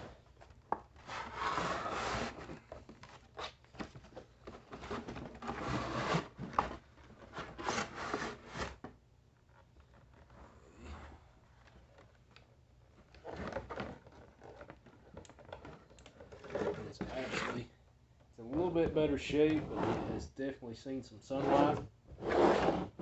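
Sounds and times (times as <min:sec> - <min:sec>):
cardboard rubbing and scraping: 0:01.0 - 0:02.6, 0:04.6 - 0:08.8, 0:16.4 - 0:17.7, 0:18.5 - 0:20.2, 0:21.3 - 0:23.0.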